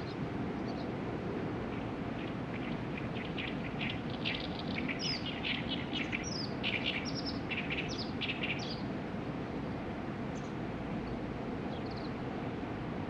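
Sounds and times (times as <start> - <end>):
small birds chirping: 0.0 - 1.0, 1.7 - 8.9, 10.3 - 12.2
low outdoor rumble: 0.0 - 13.0.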